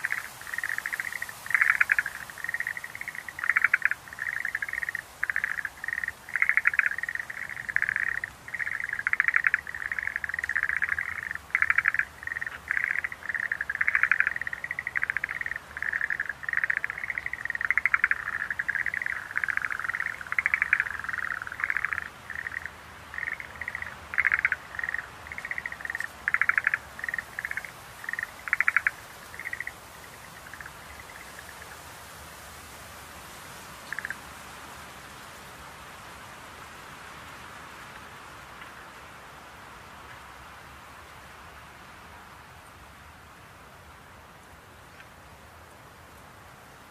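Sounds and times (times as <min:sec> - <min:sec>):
tree frogs calling: 0:00.0 - 0:32.0, 0:33.8 - 0:34.3, 0:38.5 - 0:39.0
faint hiss: 0:00.0 - 0:46.9.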